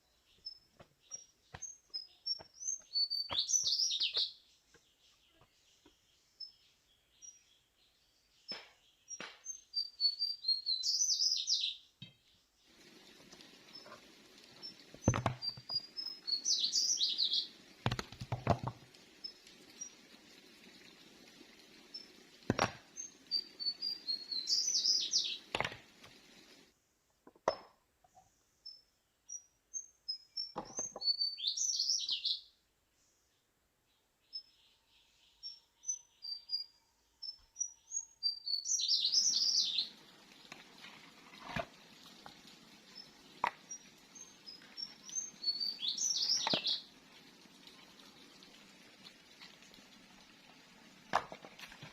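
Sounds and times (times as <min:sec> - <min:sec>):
songbird chirping phrase: 0:00.0 - 0:12.8, 0:14.6 - 0:17.6, 0:23.0 - 0:25.6, 0:28.1 - 0:40.2, 0:42.8 - 0:47.0.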